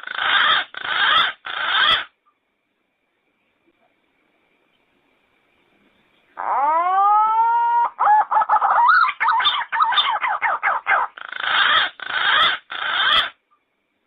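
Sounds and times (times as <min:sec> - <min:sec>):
pigeon calling: 0:00.0 - 0:02.1, 0:06.4 - 0:13.4.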